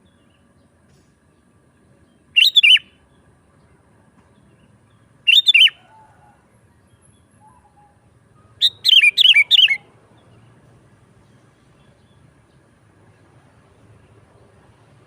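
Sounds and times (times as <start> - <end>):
bulbul singing: 2.0 - 3.4, 4.3 - 10.6.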